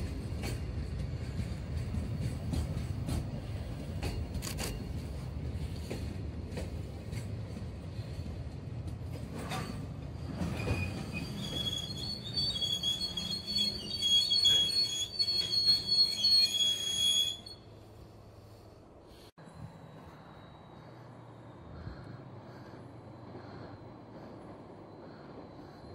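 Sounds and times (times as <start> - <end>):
train wheels rumbling on rails: 0.0 - 25.9
high wheel squeal: 9.4 - 18.2.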